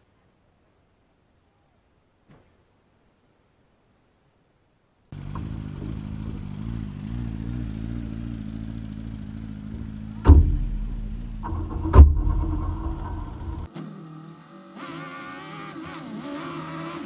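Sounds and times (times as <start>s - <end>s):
vehicle engine running: 5.1s - 13.7s
loud thumps: 9.2s - 13.7s.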